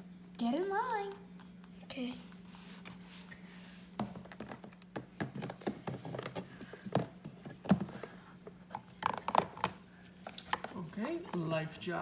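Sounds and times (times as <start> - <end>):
plastic toys clicking and knocking: 8.7 - 11.5.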